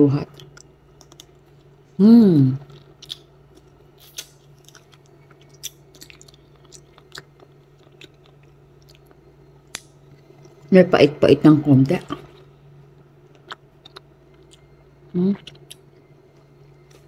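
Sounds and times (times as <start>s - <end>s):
steady low hum: 0.0s - 17.0s
person chewing: 0.4s - 1.8s, 2.6s - 10.6s, 13.2s - 16.0s.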